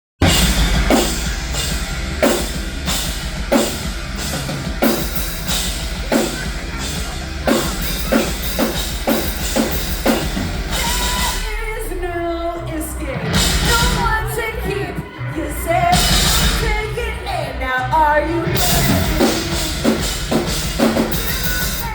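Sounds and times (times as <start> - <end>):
live rock band: 0.2 - 21.9
person singing: 6.1 - 21.9.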